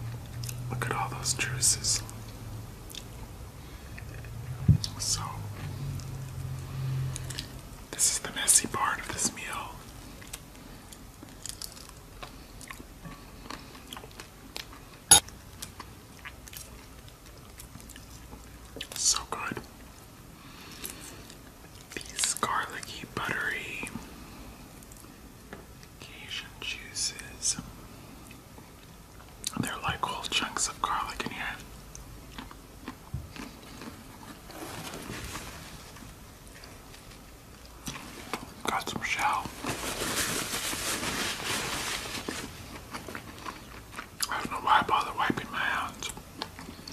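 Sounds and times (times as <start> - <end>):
eating with wet crunches: 2.3 - 3.2, 10.1 - 19.0, 31.6 - 34.7, 42.3 - 45.2, 46.0 - 46.9
soft wet rustle: 37.8 - 42.9.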